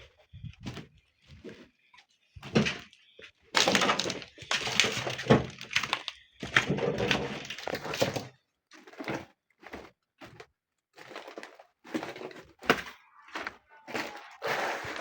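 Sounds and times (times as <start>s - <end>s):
knocks and crunching clatter: 0.0s - 15.0s.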